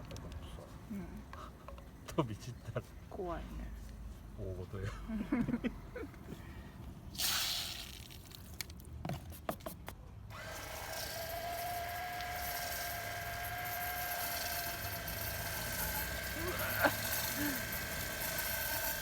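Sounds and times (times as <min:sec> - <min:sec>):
pressure washer motor whine: 0:10.3 - 0:19.0.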